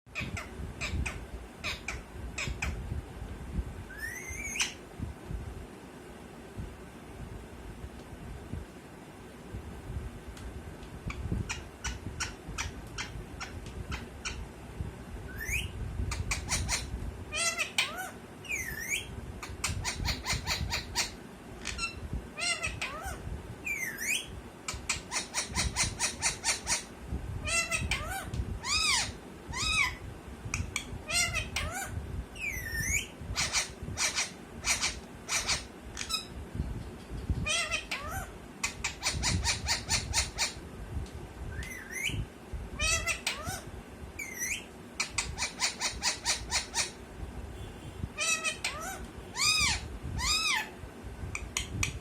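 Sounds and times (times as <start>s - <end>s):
parrot chirping and squawking: 0.1s - 2.8s, 3.9s - 4.8s, 11.1s - 14.5s, 15.3s - 30.0s, 30.6s - 36.4s, 37.4s - 40.6s, 41.6s - 42.2s, 42.8s - 47.0s, 48.2s - 50.8s.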